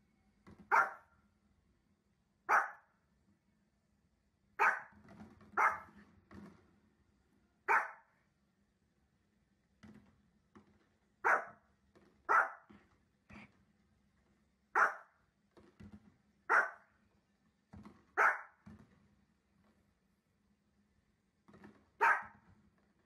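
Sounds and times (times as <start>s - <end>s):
small dog barking: 0.7s - 1.1s, 2.5s - 2.9s, 4.6s - 5.0s, 5.6s - 6.0s, 7.7s - 8.1s, 11.2s - 11.6s, 12.3s - 12.7s, 14.8s - 15.2s, 16.5s - 16.9s, 18.2s - 18.6s, 22.0s - 22.4s.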